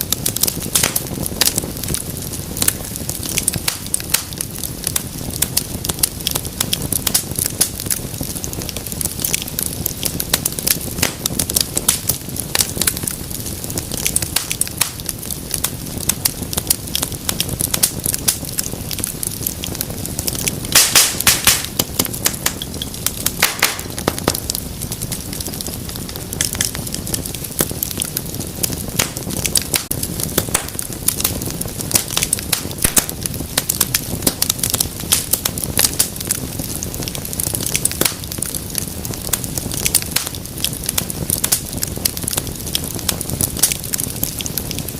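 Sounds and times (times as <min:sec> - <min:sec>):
low rumble of flames: 0:00.0 - 0:44.9
wood fire crackling and popping: 0:00.0 - 0:44.9.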